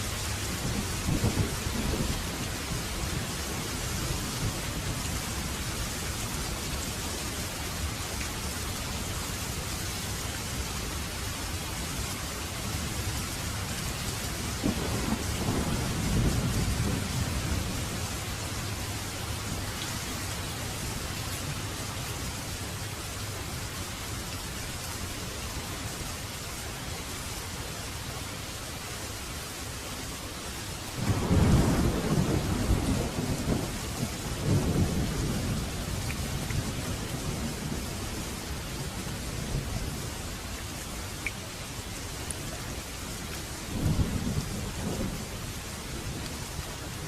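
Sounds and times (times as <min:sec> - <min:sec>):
steady rain: 0:00.0 - 0:47.0
thunder rumbling: 0:00.5 - 0:03.4, 0:14.5 - 0:18.6, 0:31.0 - 0:40.0.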